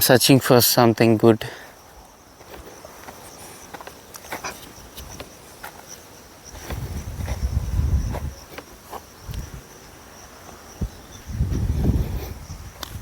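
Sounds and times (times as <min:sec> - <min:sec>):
insects trilling: 0:00.0 - 0:13.0
low rumbling bumps: 0:06.6 - 0:08.4, 0:10.8 - 0:13.0.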